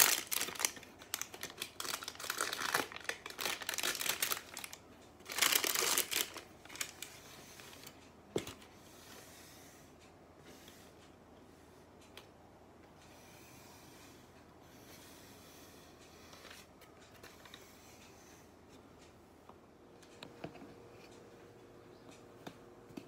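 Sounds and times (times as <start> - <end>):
baking paper crinkling: 0.0 - 7.1.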